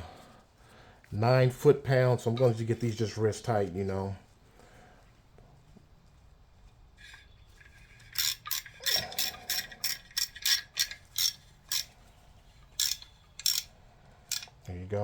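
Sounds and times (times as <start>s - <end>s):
hand ratchet clicking: 7.0s - 12.0s, 12.6s - 14.7s.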